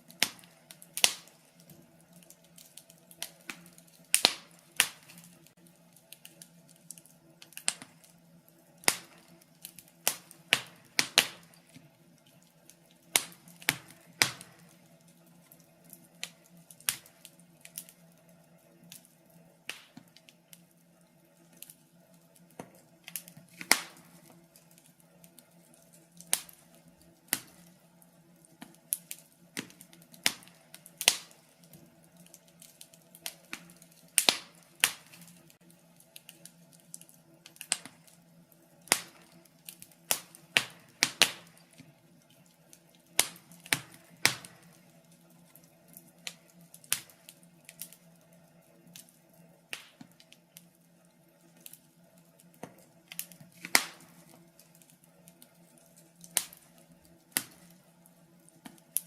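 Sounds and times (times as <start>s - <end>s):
faint steady hum: 0.0s - 59.0s
wood fire crackling: 0.0s - 59.0s.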